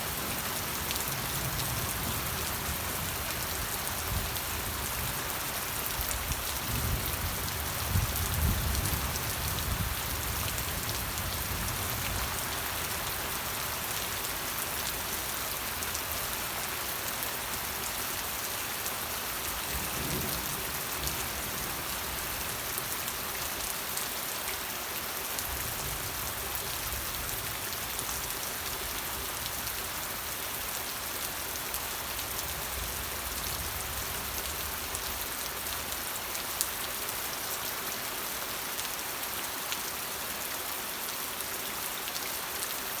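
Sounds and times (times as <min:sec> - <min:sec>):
rain falling on a surface: 0:00.0 - 0:43.0.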